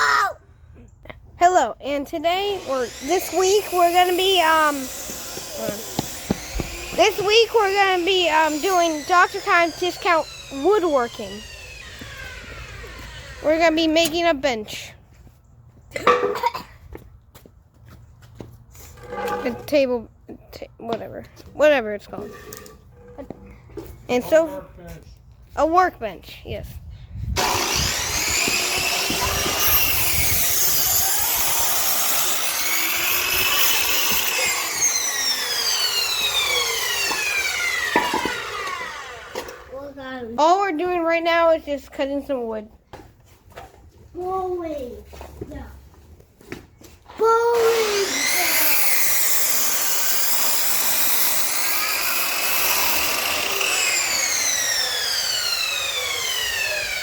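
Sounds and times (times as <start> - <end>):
power saw cutting wood: 1.9 - 14.8, 18.8 - 20.0, 27.4 - 41.6, 47.2 - 57.0
saw blade spinning down: 2.4 - 14.2, 27.4 - 39.7, 47.6 - 57.0.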